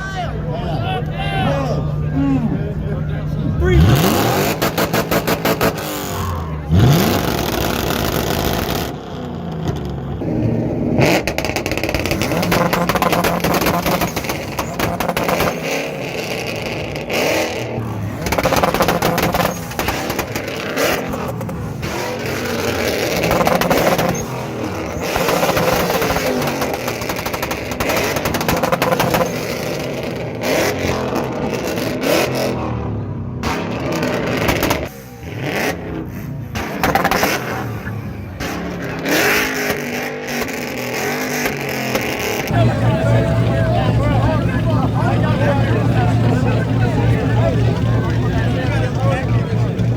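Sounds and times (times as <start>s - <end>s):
car engine revving: 0.3s - 49.9s
rapid crackling: 11.0s - 30.6s, 42.2s - 49.9s.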